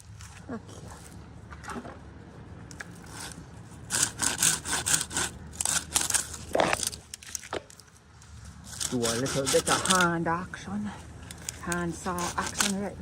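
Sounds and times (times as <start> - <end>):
hand saw cutting wood: 3.1 - 6.8, 8.7 - 10.2, 12.0 - 13.0.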